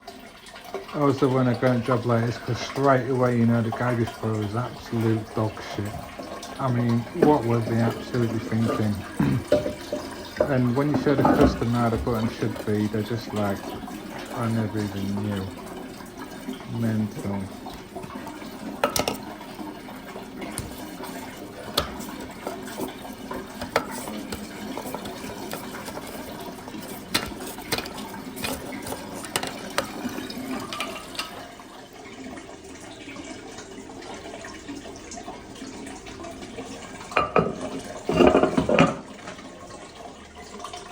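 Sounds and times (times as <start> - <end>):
toilet cistern filling with water: 0.0 - 40.9
clicks and clinks at cistern: 37.2 - 39.1.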